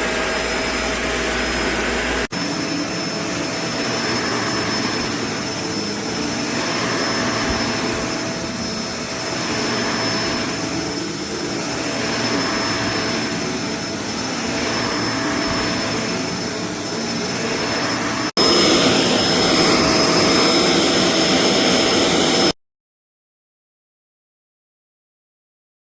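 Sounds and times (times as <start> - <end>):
vacuum cleaner running: 0.0 - 22.6.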